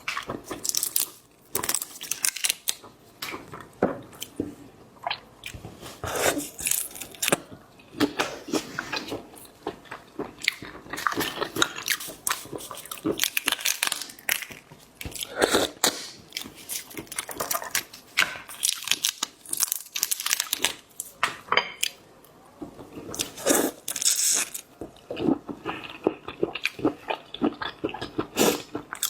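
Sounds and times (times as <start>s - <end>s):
crunchy bites: 10.4s - 21.1s.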